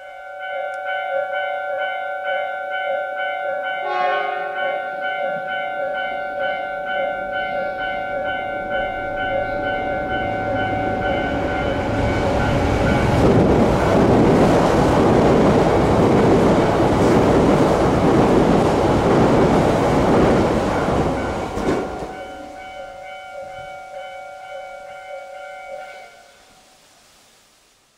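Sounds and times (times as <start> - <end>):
train roaring past on rails: 0.0 - 27.7.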